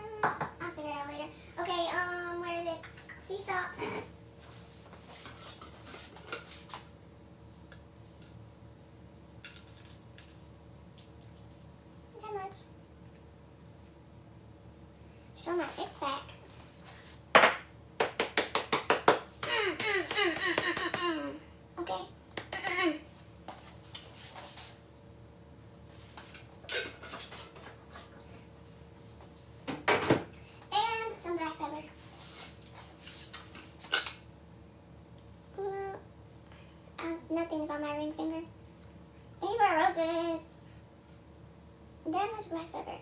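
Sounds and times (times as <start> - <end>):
utensils rustling and scraping: 3.8 - 6.9, 23.5 - 24.9, 25.9 - 28.2, 32.0 - 34.2
kitchen utensils clinking: 26.3 - 27.8, 32.3 - 34.3.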